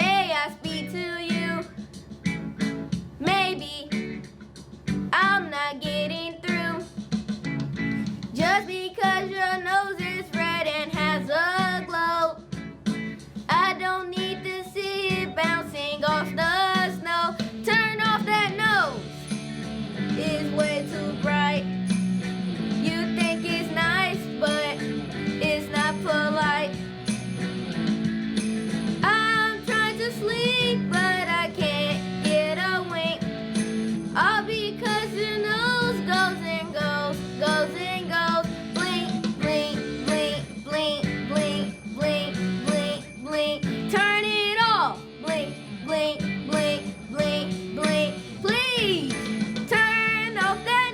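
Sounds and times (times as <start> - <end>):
music: 0.0 - 50.9
sustained instrumental accompaniment: 19.0 - 26.0, 26.7 - 30.8.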